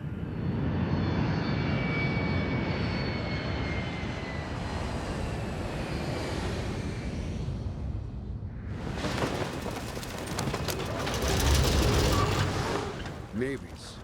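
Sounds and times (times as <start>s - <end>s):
aircraft engine rushing: 8.7s - 14.0s.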